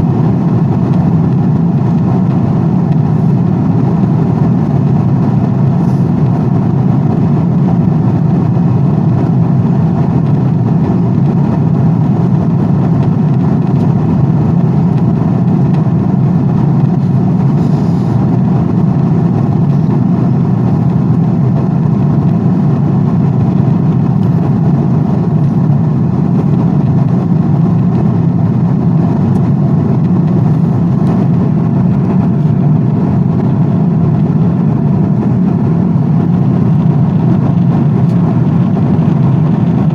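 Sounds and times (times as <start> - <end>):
airplane cabin noise: 0.0 - 39.9.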